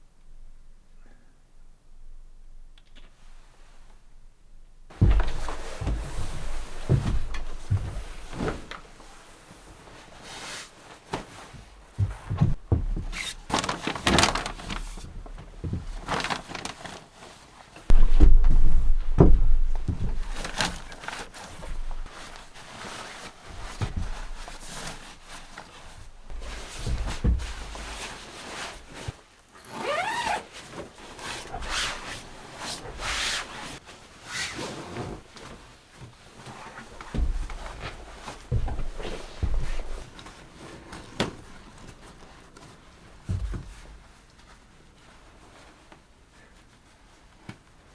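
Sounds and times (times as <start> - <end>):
knocks and thunks of handling things: 4.9 - 9.4, 11.1 - 17.0, 17.8 - 29.1, 35.4 - 44.2.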